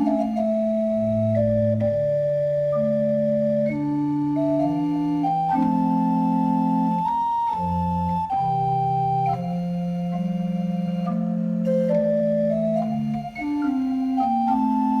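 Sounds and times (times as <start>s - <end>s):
organ playing held chords: 0.0s - 15.0s.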